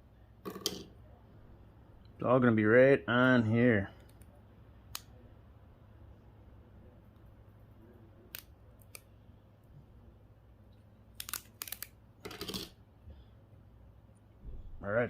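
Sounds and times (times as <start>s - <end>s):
small electronic parts clicking: 11.2s - 12.7s.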